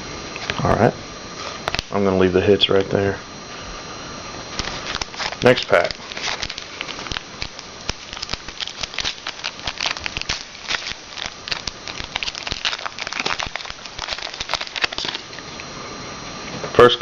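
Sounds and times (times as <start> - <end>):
wrapper crinkling and tearing: 4.5 - 15.4.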